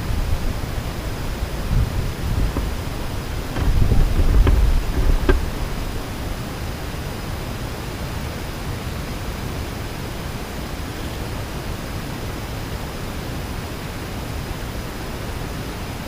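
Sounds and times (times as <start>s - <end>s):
outdoor background hiss: 0.0s - 16.0s
low rumble: 2.4s - 6.6s.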